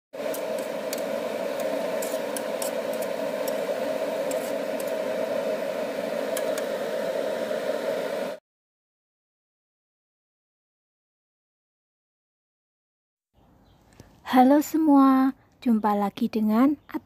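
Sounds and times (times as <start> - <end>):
vegetables sizzling in a wok: 0.2 - 8.4.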